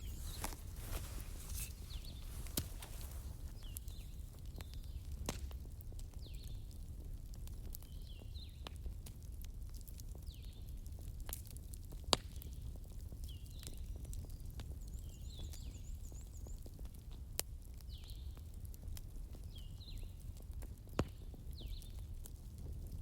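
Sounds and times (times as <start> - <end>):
fire popping: 0.0 - 12.6
wood fire crackling: 0.0 - 12.8.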